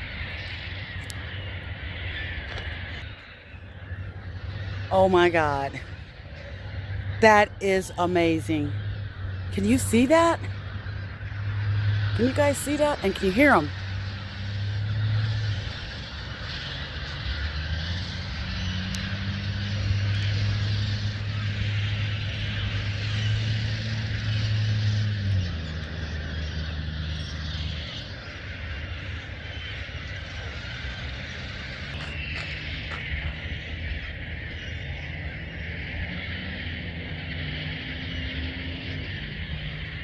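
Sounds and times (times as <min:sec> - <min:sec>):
vehicle engine hum: 0:00.0 - 0:40.0
flock of gulls calling: 0:25.6 - 0:36.3.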